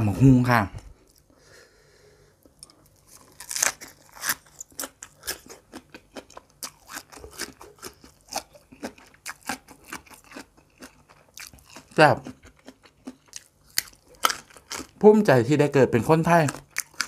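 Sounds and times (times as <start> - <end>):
crunchy chewing: 2.5 - 15.0, 16.3 - 17.0.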